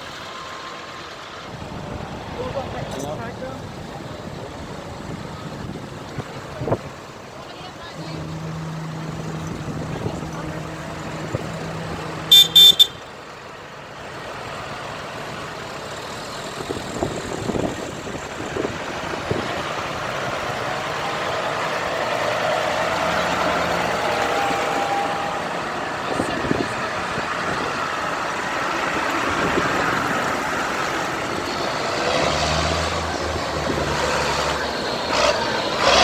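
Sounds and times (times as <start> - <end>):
low engine hum: 0.0 - 36.0
truck approaching: 0.0 - 36.0
high-pitched horn toots: 8.2 - 13.2.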